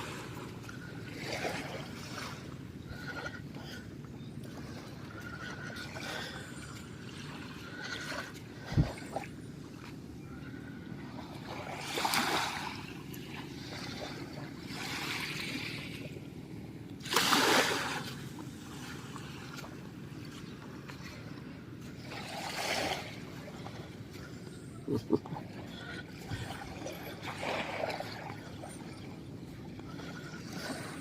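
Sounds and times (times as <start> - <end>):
small waves breaking: 0.0 - 31.0.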